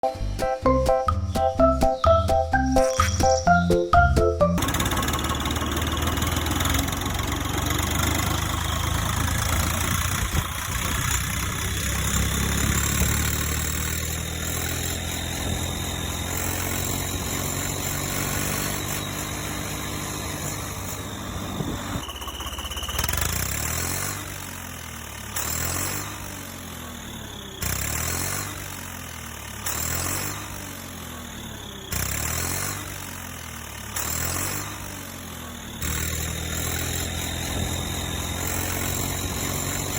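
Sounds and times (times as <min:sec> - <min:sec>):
tractor engine revving: 0:04.6 - 0:20.2, 0:35.8 - 0:39.9.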